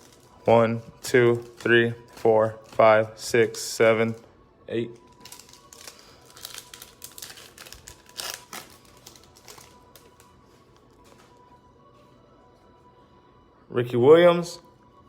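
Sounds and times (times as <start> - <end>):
plastic wrapper crinkling: 0.0 - 11.5.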